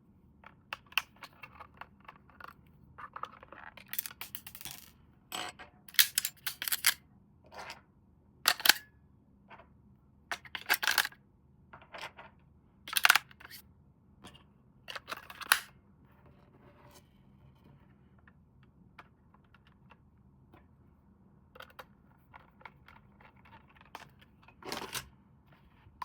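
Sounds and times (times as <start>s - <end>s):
plastic toy parts clicking: 3.8s - 4.9s, 5.9s - 7.0s, 8.5s - 8.8s, 10.6s - 11.1s, 12.9s - 13.4s.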